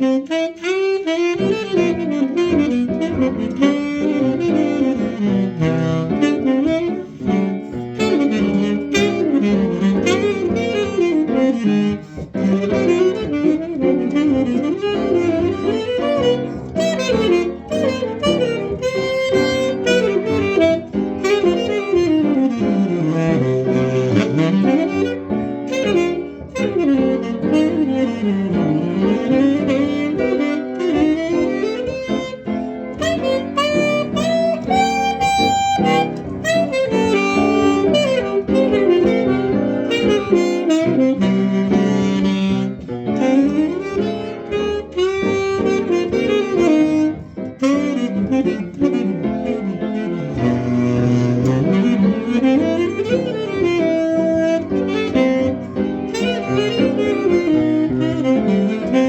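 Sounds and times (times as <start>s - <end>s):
saxophone playing jazz: 0.0s - 59.0s
bass line: 46.4s - 55.5s.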